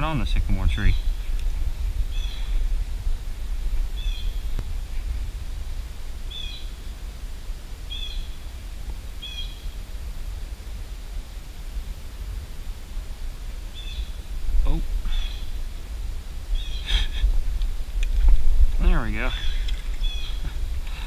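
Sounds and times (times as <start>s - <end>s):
low background rumble: 0.0s - 21.0s
bird chirping: 0.7s - 1.5s, 2.1s - 2.7s, 3.9s - 4.6s, 6.3s - 6.8s, 7.9s - 8.4s, 9.2s - 9.8s, 13.7s - 15.6s, 16.5s - 17.4s, 18.8s - 21.0s.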